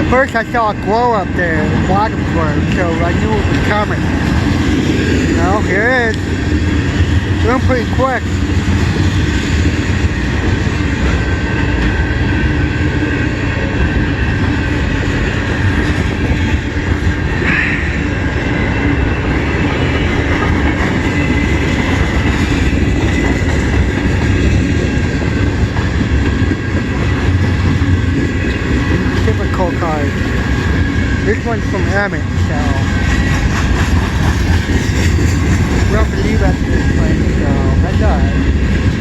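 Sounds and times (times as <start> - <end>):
freight train wheels rumbling: 0.0 - 39.0.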